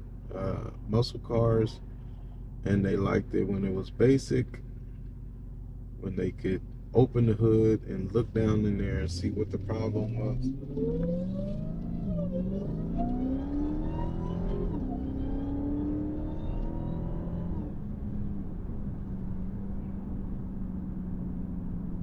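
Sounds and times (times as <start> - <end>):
supercharger whine: 0.0 - 22.0
car engine accelerating hard: 7.2 - 22.0.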